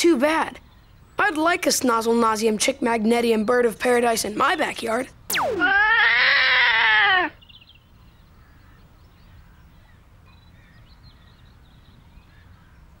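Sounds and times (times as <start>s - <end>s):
loud bird squawk: 5.3s - 7.4s.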